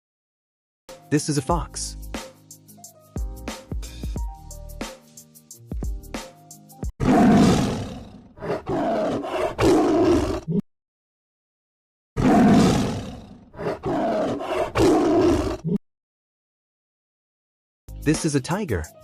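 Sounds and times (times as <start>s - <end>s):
tiger roaring: 7.0s - 10.6s, 12.2s - 15.7s.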